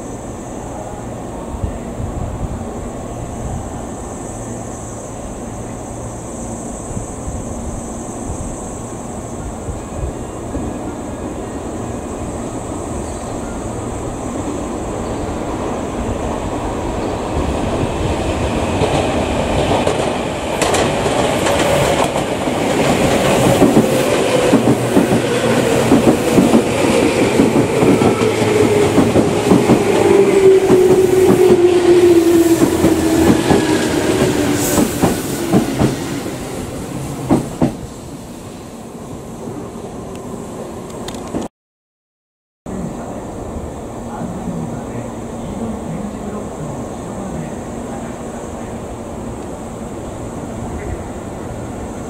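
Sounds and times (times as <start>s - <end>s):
train wheels clattering: 18.8s - 31.7s, 32.5s - 36.1s.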